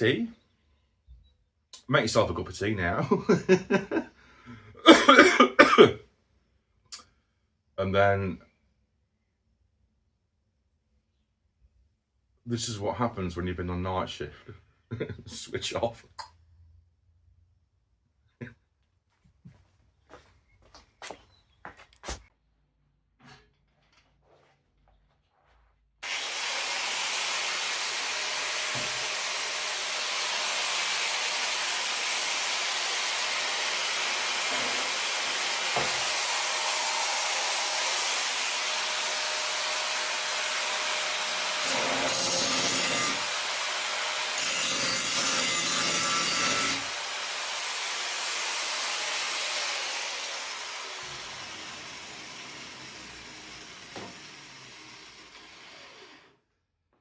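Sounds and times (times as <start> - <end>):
abrasive power tool on metal: 26.0 - 56.4.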